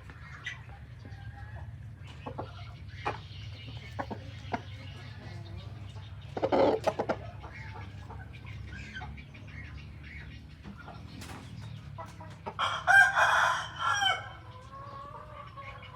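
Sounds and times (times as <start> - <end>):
chickens clucking: 0.0 - 15.9
rooster crowing: 12.6 - 14.5.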